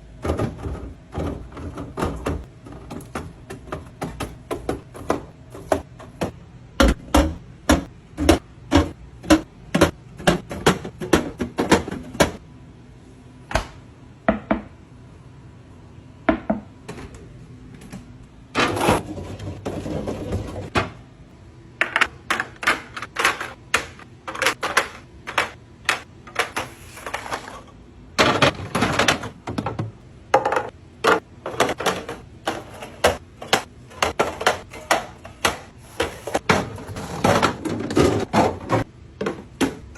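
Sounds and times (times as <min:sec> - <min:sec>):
hard objects clicking and knocking: 0:00.2 - 0:12.4, 0:21.8 - 0:39.9.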